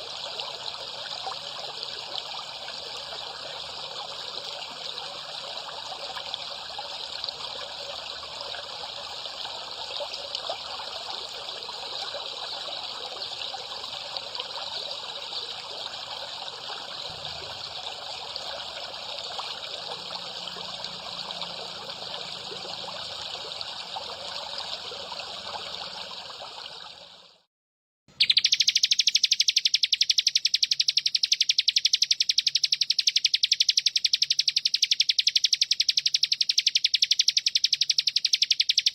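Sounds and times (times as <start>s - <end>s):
water trickling: 0.0s - 27.4s
songbird buzzy trill: 28.1s - 38.9s.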